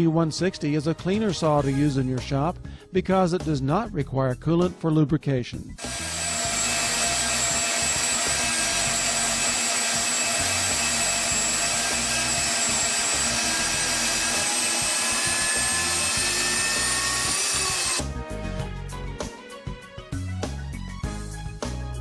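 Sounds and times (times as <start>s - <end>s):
band saw cutting metal: 5.8s - 18.1s.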